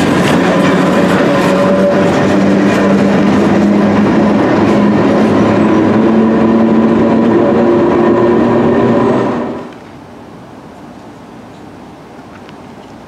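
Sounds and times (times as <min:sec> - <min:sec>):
steady whining tones: 0:00.0 - 0:09.7
train rolling rumble: 0:00.0 - 0:09.8.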